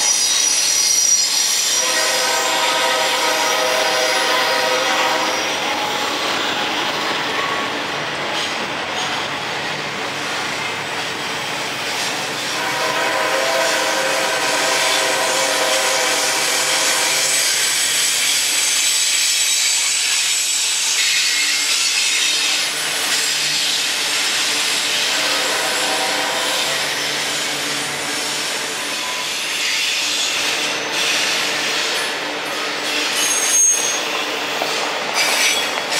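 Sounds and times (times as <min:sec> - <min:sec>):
steel wheels squealing: 0:00.0 - 0:09.4, 0:13.6 - 0:35.9
train cars rolling on rails: 0:00.0 - 0:35.9.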